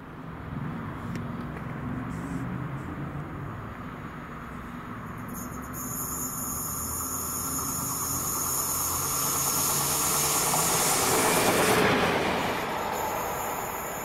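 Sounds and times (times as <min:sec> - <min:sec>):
train passing: 0:03.2 - 0:14.0.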